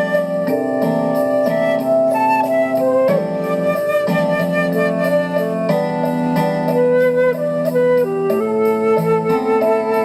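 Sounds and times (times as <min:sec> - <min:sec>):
flute melody: 0:00.0 - 0:10.0
soft keyboard accompaniment: 0:00.0 - 0:10.0.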